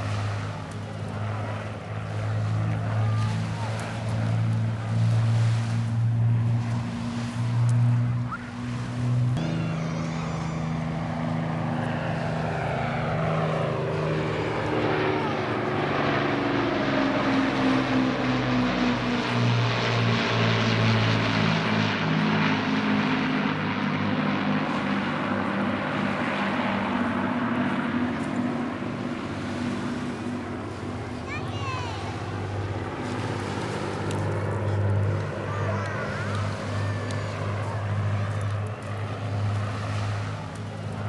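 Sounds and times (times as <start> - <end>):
propeller aircraft flying past: 0.0 - 41.0.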